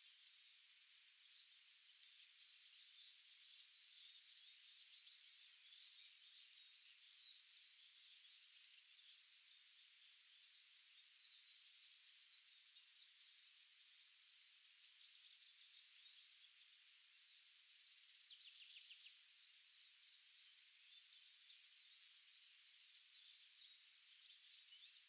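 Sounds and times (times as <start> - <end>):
faint birdsong: 0.0 - 25.0
soft steady hiss: 0.0 - 25.0.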